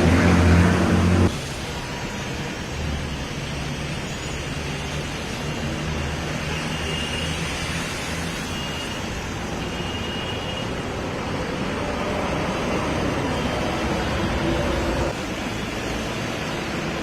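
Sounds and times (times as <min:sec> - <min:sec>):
vehicle engines running: 0:00.0 - 0:01.3.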